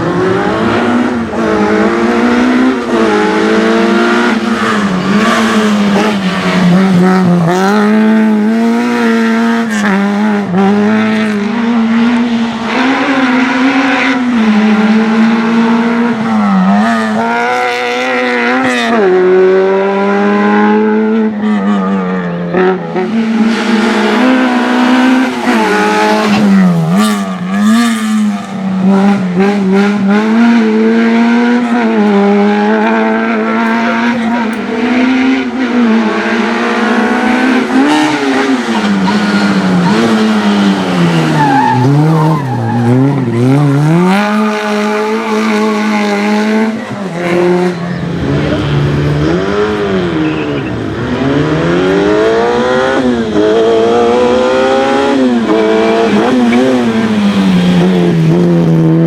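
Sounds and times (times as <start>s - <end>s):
car engine revving hard: 0.0s - 59.0s
tyres squealing: 32.6s - 51.4s.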